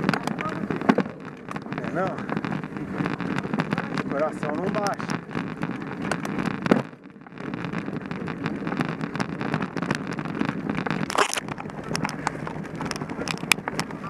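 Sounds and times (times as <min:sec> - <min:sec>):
bike tyres on dirt trail: 0:00.0 - 0:14.0
bike rattling clicks: 0:07.8 - 0:14.0.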